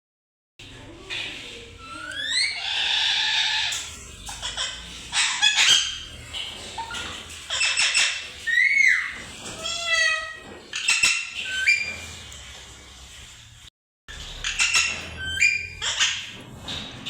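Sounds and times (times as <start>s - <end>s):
parrot screeching and squawking: 1.7s - 12.2s, 14.2s - 16.4s
parrot whistling: 7.6s - 12.0s.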